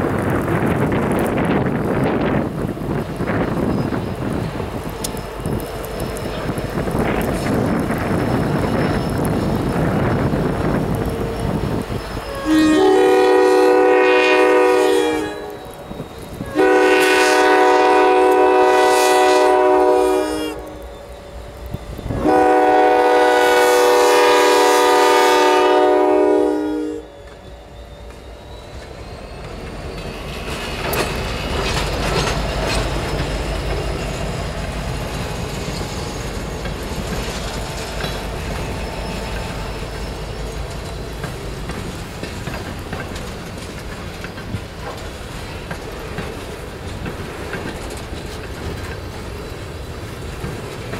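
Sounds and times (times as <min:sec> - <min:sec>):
wheels clacking over rail joints: 0:00.0 - 0:18.6, 0:27.2 - 0:50.9
train rumbling past: 0:00.0 - 0:50.9
locomotive air horn blasts: 0:12.3 - 0:20.9, 0:22.1 - 0:27.2.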